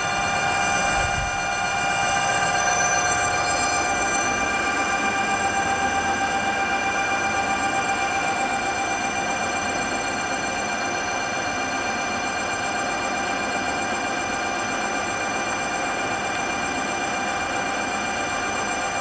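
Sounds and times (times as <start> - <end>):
electric motor high whine: 0.0 - 10.2.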